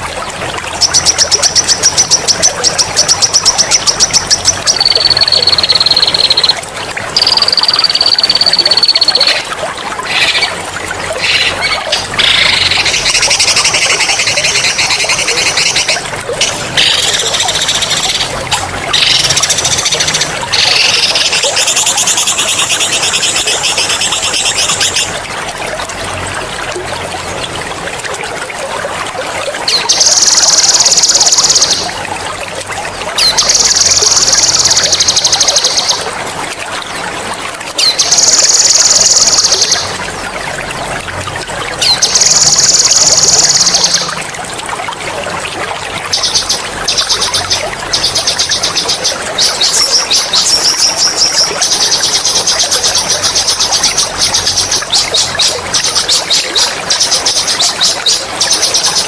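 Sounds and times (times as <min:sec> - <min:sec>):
water trickling: 0:00.0 - 0:59.0
songbird high rolling trill: 0:00.8 - 0:06.6.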